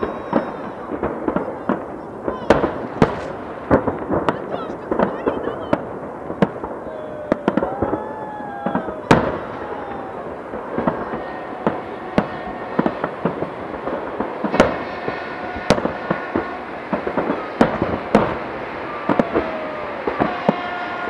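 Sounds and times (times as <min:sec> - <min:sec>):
firework shells bursting: 0:00.0 - 0:21.0.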